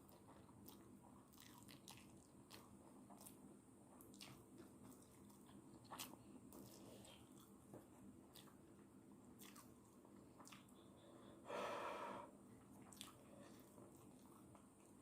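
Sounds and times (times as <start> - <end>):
soft chewing clicks: 0.0 - 11.1, 12.6 - 15.0
short sharp breath: 11.1 - 12.3.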